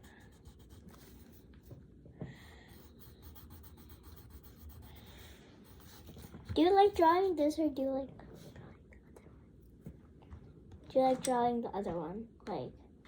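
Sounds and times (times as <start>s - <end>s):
colored pencil scratching on paper: 0.0s - 1.7s, 2.7s - 7.4s.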